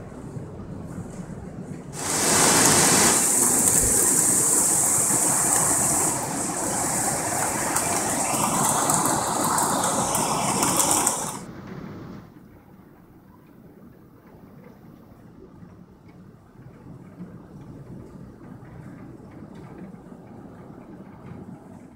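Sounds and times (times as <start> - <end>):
hail storm downpour hiss: 1.9 - 12.4.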